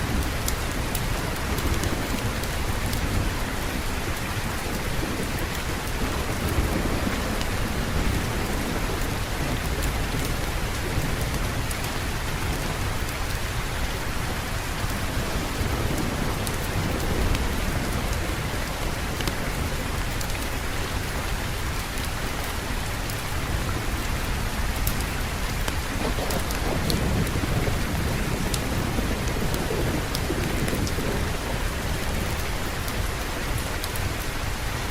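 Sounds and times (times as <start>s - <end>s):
heavy rain: 0.0s - 34.9s
low rumble of thunder: 0.0s - 34.9s.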